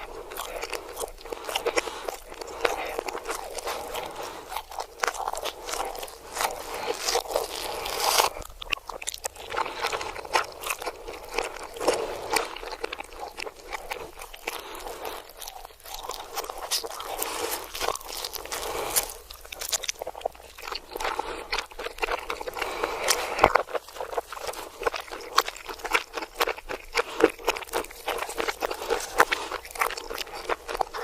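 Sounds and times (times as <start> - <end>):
crunching and chewing crisp food: 0.0 - 31.0.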